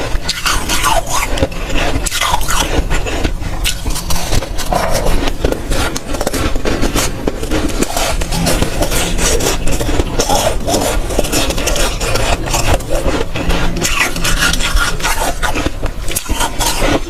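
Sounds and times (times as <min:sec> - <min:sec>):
crunching and chewing frost: 0:00.0 - 0:17.0.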